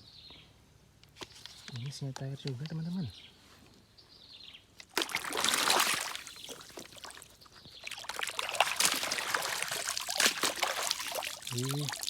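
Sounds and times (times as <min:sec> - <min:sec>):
water splashing over plastic toy: 0:04.8 - 0:07.3, 0:07.9 - 0:12.0.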